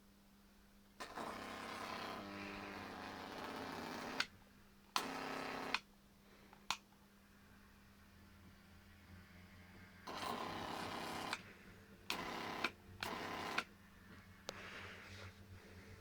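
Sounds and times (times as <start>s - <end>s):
steady low hum: 6.0s - 16.0s.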